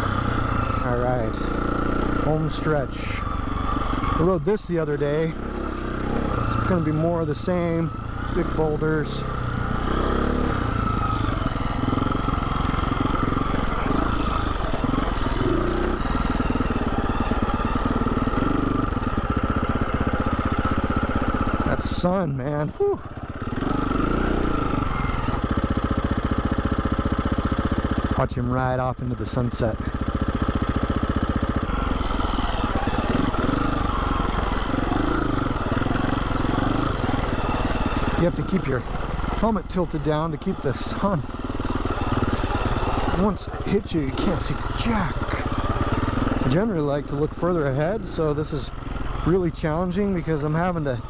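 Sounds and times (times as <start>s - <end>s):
dirt bike engine puttering: 0.0s - 51.0s.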